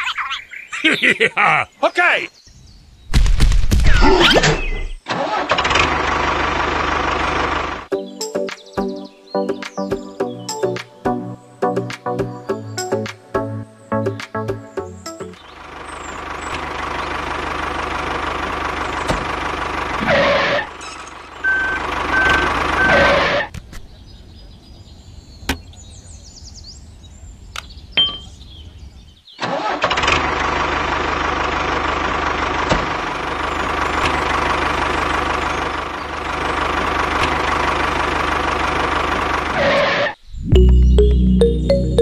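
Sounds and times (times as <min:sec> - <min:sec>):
small vehicle engine running: 0:05.1 - 0:07.9, 0:15.4 - 0:23.5, 0:29.5 - 0:40.2.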